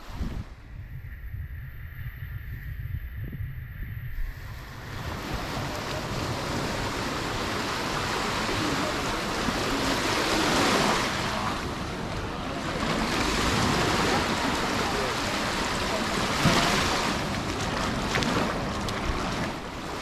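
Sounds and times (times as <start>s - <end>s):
wind rumbling on microphone: 0.0s - 20.0s
sea waves breaking: 4.2s - 20.0s.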